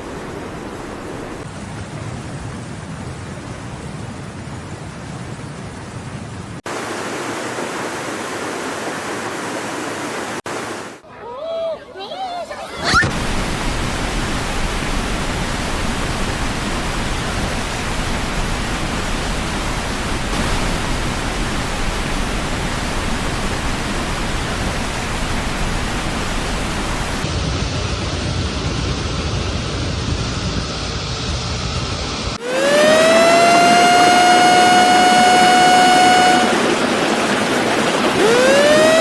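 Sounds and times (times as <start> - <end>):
water rushing: 0.0 - 3.6, 6.6 - 11.0, 12.7 - 27.3, 32.4 - 39.0.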